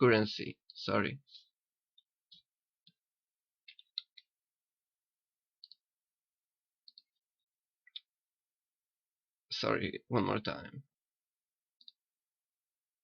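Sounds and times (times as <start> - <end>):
computer mouse clicking: 5.6 - 5.8, 6.9 - 7.2, 11.8 - 12.0.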